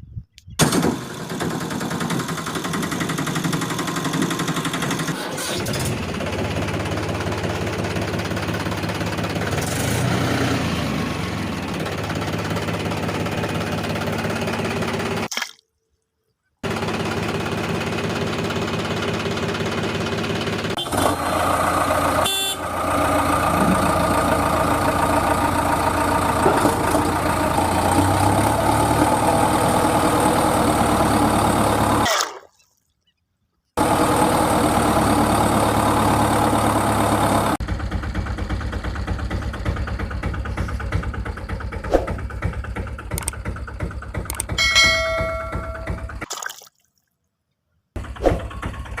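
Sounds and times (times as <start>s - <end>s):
engine running: 0.6s - 15.3s, 16.6s - 32.2s, 33.8s - 46.3s, 48.0s - 49.0s.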